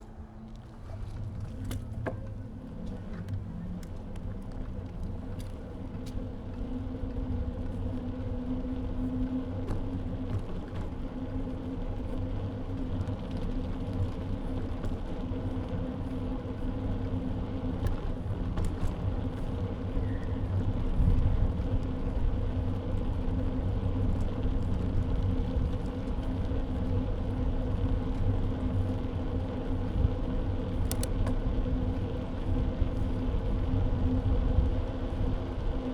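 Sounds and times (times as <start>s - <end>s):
bike rumble and hum: 0.0s - 35.9s
faint clicks and rattles: 30.7s - 31.5s.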